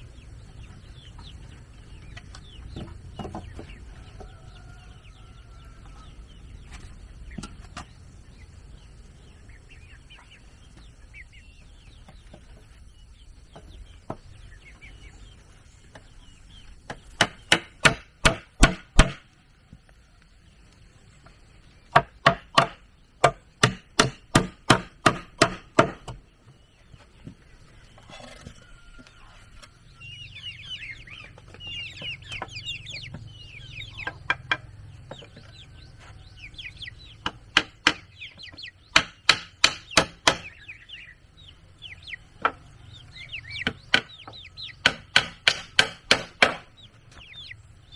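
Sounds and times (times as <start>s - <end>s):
chickens clucking: 0.0s - 45.4s, 46.4s - 47.9s
sharp blows on wood: 17.0s - 19.3s, 21.9s - 26.2s, 38.9s - 40.6s, 44.8s - 46.7s.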